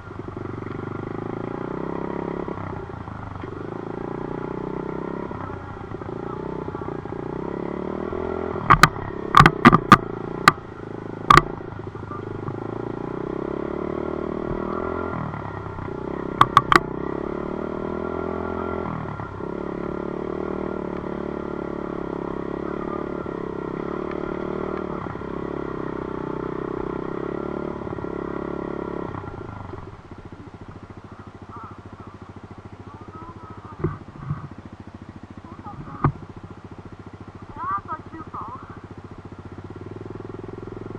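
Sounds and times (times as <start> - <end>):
dirt bike engine running: 0.0 - 40.9
sharp clicks: 8.6 - 10.6, 11.3 - 11.6, 15.8 - 16.9.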